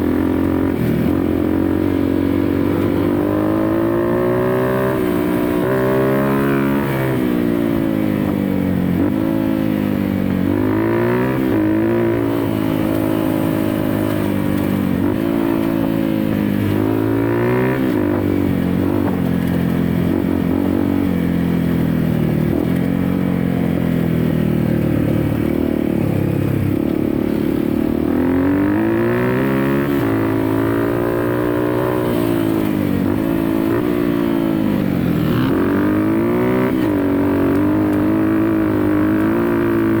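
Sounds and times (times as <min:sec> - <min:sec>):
dirt bike engine revving: 0:00.0 - 0:07.7, 0:10.5 - 0:15.9, 0:27.9 - 0:40.0.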